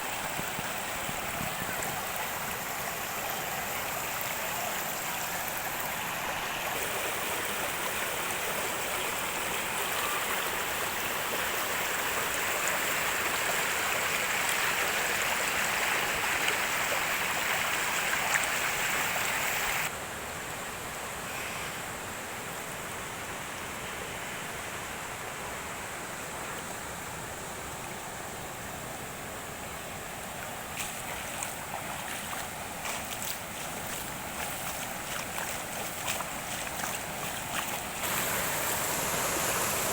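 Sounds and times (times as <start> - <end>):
steady rain falling: 0.0 - 21.3, 21.9 - 39.9
sharp drip-like ticks: 30.4 - 39.4.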